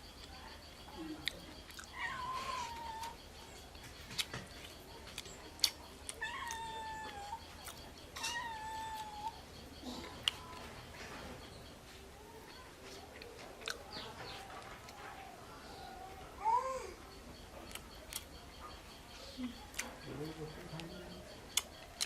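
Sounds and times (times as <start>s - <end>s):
animal calling: 1.7s - 3.8s, 5.2s - 10.8s.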